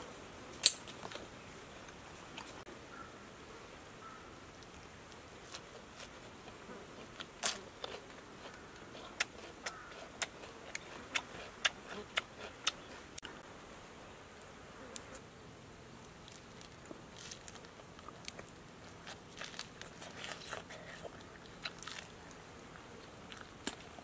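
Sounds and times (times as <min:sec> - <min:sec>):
faint buzz of insects: 0:00.0 - 0:24.0
person chewing food: 0:05.5 - 0:13.3, 0:17.2 - 0:23.9.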